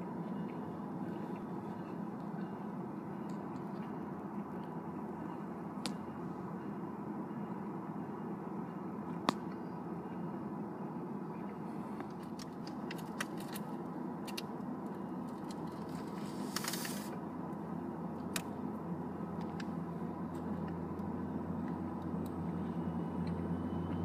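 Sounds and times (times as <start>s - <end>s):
diesel locomotive drone: 0.0s - 24.0s
short hiss: 16.2s - 17.1s.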